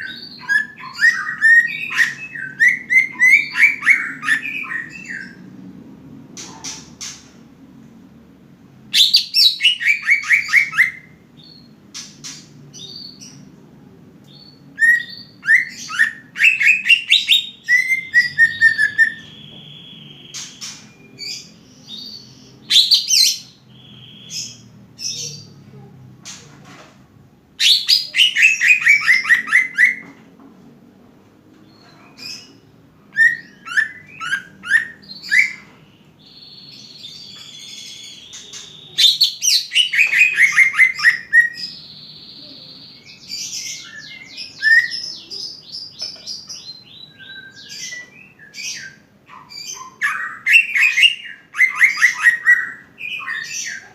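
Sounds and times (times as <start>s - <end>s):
bird singing rapid descending notes: 14.3s - 25.6s.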